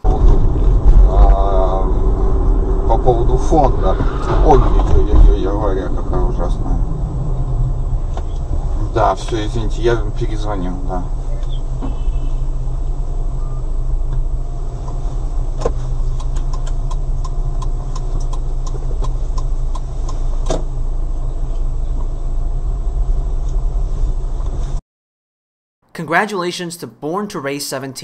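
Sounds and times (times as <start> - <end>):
car engine and road rumble: 0.0 - 24.8.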